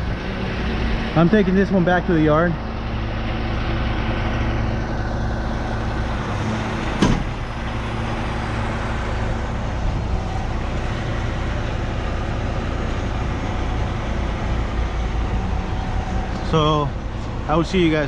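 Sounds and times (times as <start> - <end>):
tow truck engine drone: 0.0 - 18.0
sharp knock: 7.0 - 7.4.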